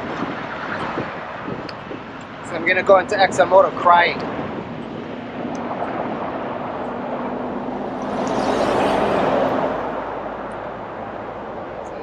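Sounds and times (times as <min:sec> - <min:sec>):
wind rush: 0:00.0 - 0:12.0
motorcycle running: 0:04.4 - 0:11.6.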